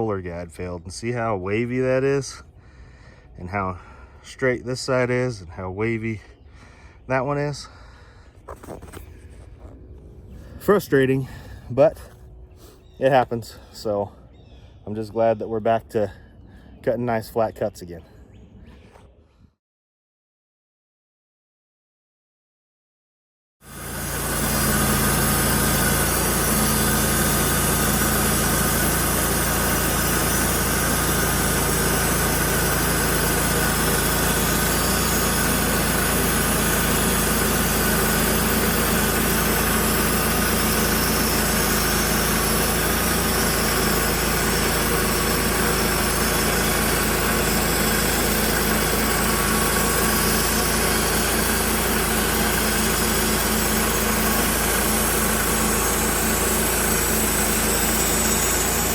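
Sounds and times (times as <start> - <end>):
band sawmill running: 6.2 - 14.0, 23.6 - 58.9.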